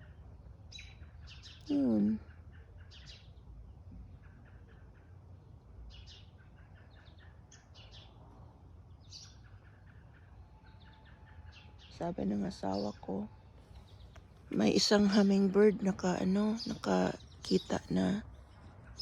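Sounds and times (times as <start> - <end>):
birds chirping faintly: 0.0 - 19.0
low background rumble: 5.3 - 19.0.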